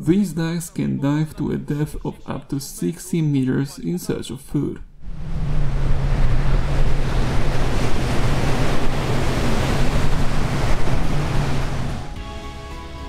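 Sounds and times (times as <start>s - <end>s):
wind on microphone: 5.0s - 12.0s
steady low hum: 5.0s - 12.1s
sea surf: 5.1s - 12.7s.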